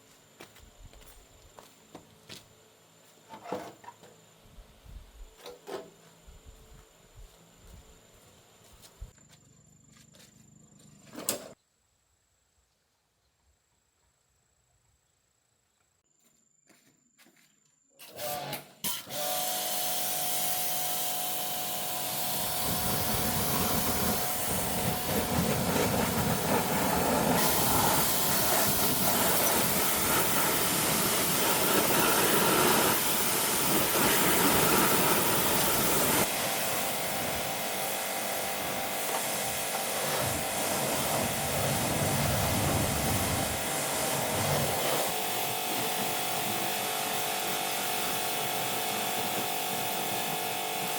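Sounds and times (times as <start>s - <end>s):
workshop machine hissing and humming: 18.0s - 50.9s.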